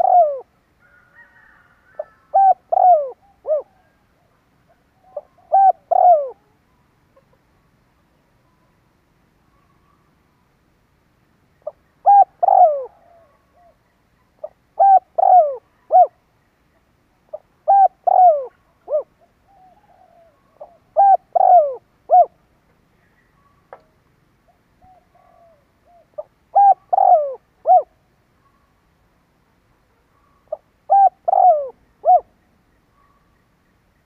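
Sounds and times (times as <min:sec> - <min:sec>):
dove cooing: 0:00.0 - 0:07.4, 0:11.6 - 0:16.2, 0:17.3 - 0:22.4, 0:24.5 - 0:28.0, 0:30.2 - 0:32.3.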